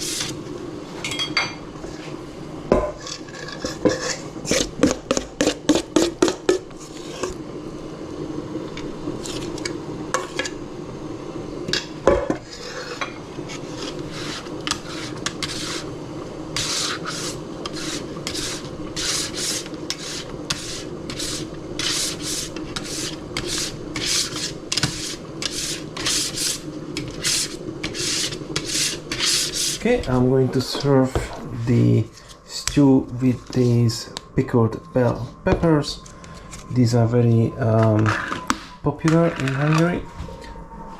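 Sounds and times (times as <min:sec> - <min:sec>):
steady low hum: 0:00.0 - 0:40.9
metal utensil scraping a pot: 0:02.9 - 0:05.7, 0:12.3 - 0:15.9, 0:16.6 - 0:31.4, 0:37.8 - 0:39.9.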